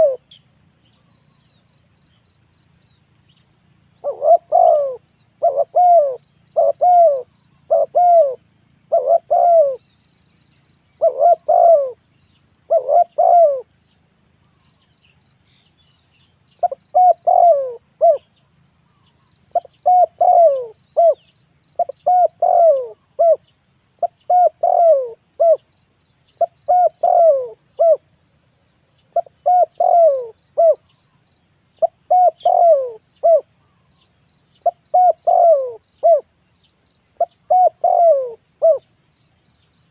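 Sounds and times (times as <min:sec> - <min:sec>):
dove cooing: 0:00.0 - 0:00.4, 0:04.0 - 0:09.9, 0:11.0 - 0:12.0, 0:12.7 - 0:13.8, 0:16.6 - 0:18.3, 0:18.9 - 0:25.7, 0:26.3 - 0:28.3, 0:29.0 - 0:31.2, 0:31.8 - 0:36.4, 0:37.2 - 0:38.9.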